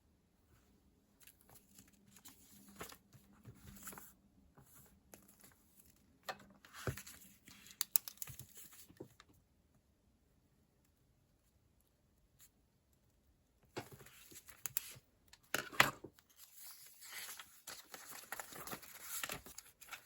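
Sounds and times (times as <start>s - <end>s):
paper rustling and crinkling: 1.2s - 6.0s, 13.8s - 20.0s.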